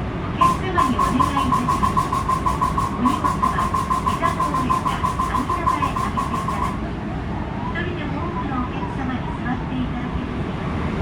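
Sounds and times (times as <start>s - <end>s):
rapid clacking under a train: 0.4s - 6.8s
pulsing ringing tone: 0.4s - 6.9s.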